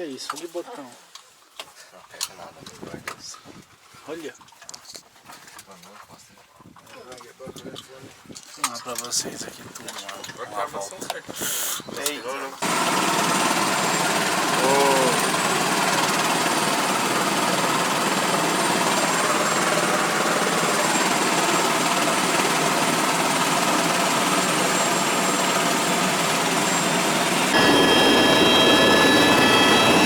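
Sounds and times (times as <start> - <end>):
helicopter engine and rotor: 12.6 - 30.0
high whining tones: 12.6 - 30.0.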